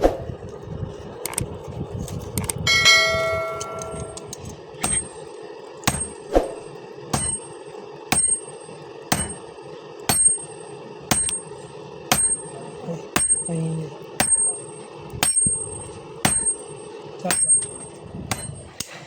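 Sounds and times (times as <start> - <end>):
steady low hum: 0.0 - 19.0
hammer striking steel anvil: 2.7 - 9.5, 10.1 - 13.6, 14.2 - 18.9.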